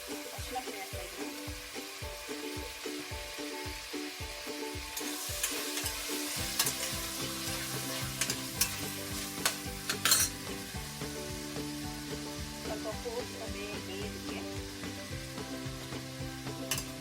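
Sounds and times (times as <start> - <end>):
chicken sizzling in hot oil: 0.0 - 17.0
spoon scraping pan: 4.9 - 10.8.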